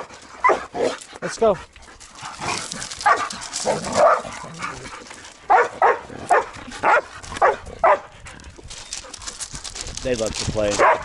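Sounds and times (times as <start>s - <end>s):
dog barking: 3.0s - 3.2s, 4.0s - 4.2s, 5.5s - 8.1s, 10.8s - 11.0s.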